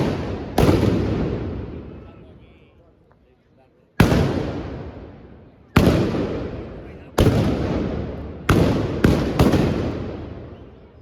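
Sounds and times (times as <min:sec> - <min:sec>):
blunderbuss blank shots with echo: 0:00.0 - 0:01.9, 0:05.8 - 0:10.4.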